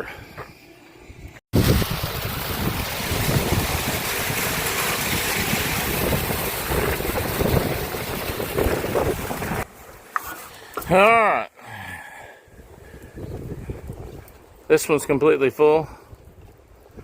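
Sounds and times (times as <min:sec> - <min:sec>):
water rushing through hose: 0:01.6 - 0:11.2.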